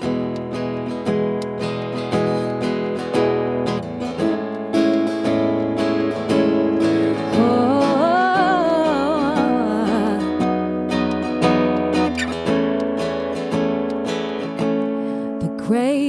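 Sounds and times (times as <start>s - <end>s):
acoustic guitar strumming: 0.0s - 16.0s
wordless singing with vibrato: 6.8s - 10.8s.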